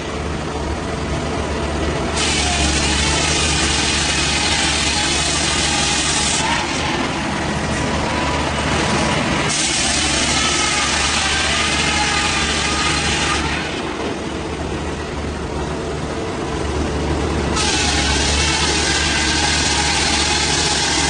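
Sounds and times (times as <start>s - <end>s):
engine-driven saw running: 0.0s - 21.0s
saw cutting with hissing whine: 2.2s - 14.0s, 17.5s - 21.0s.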